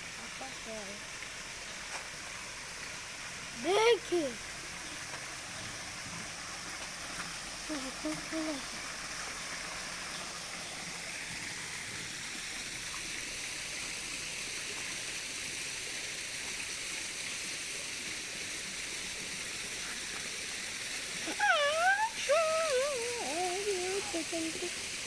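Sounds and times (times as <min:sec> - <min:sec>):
water rushing in stream: 0:00.0 - 0:25.0
wavering call: 0:21.3 - 0:24.7.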